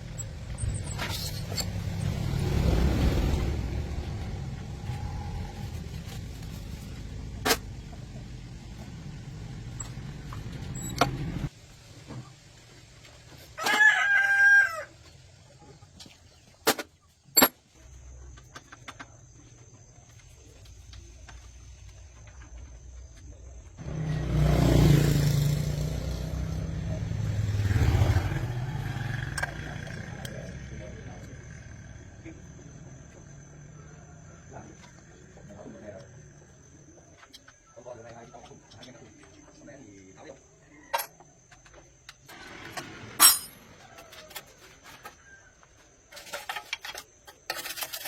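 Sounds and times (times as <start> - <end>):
engine low rumble: 0.0 - 13.2, 25.5 - 37.0.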